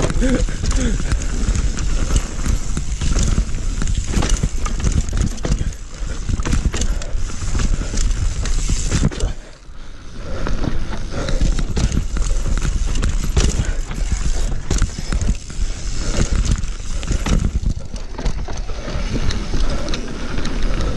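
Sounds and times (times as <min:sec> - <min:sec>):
mountain bike rattling over rocks: 0:00.0 - 0:20.9.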